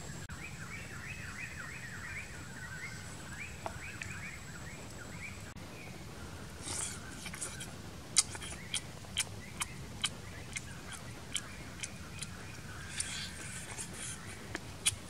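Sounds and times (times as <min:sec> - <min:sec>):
man chewing and crunching: 0:06.6 - 0:15.0.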